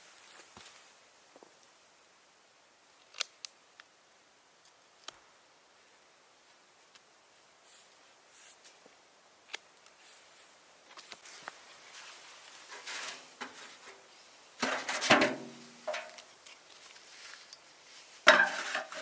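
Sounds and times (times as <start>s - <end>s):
light clicks and rustles: 15.8s - 19.0s.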